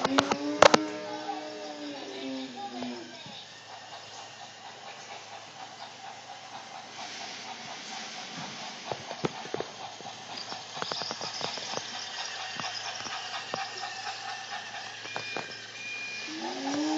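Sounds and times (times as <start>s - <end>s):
steady hiss: 0.0s - 16.9s
train clanking on track: 0.0s - 16.9s
sharp clicks and knocks: 7.5s - 15.6s.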